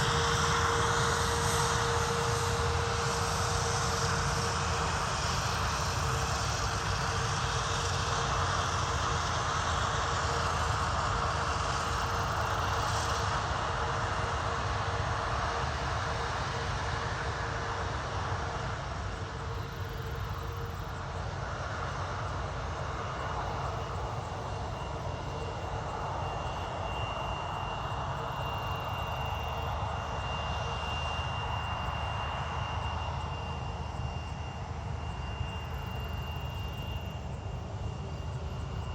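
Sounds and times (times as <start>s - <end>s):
jet engines rushing: 22.1s - 38.9s
thin high whine: 23.3s - 38.9s.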